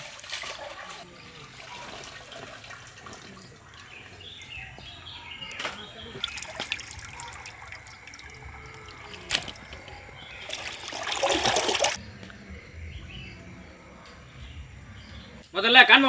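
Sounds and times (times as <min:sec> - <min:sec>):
water trickling and splashing: 0:00.0 - 0:12.0
loud pour of water: 0:06.2 - 0:12.0.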